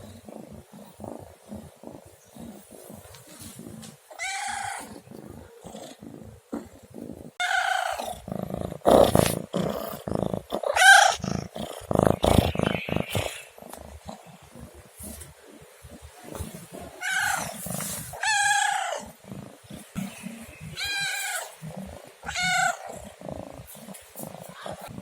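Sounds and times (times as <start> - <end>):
cat meowing: 20.7 - 21.5, 22.2 - 22.8.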